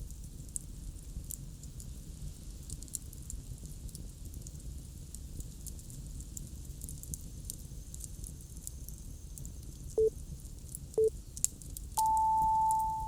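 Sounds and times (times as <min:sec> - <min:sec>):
campfire crackling: 0:00.0 - 0:12.0
timer beeps: 0:12.0 - 0:13.0.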